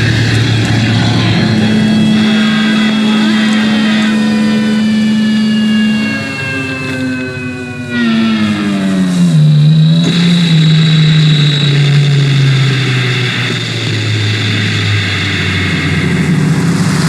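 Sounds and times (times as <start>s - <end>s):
strings scraping against amp: 0.0s - 16.8s
distorted electric guitar drone: 0.0s - 17.0s.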